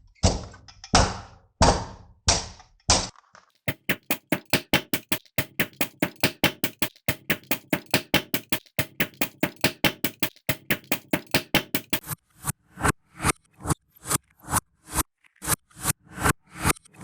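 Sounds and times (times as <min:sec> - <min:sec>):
heavy knocks: 0:03.7 - 0:12.0.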